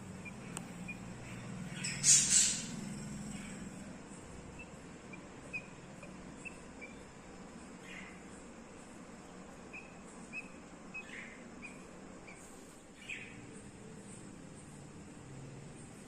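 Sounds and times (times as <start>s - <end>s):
harsh budgerigar calls: 0.0s - 8.5s, 9.6s - 13.5s
budgerigars chirping softly: 0.0s - 16.0s
steady background hiss: 0.0s - 16.0s.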